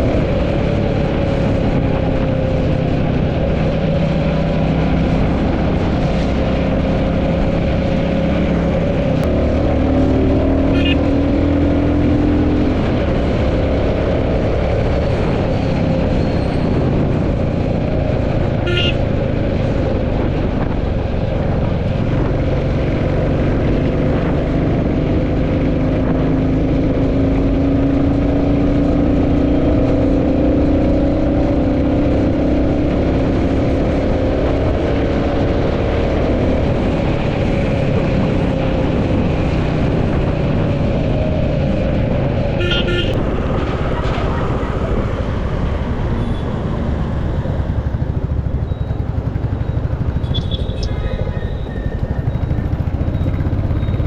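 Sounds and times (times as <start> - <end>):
motorcycle engine cruising: 0.0 - 54.0
short high-pitched beep: 50.3 - 52.6.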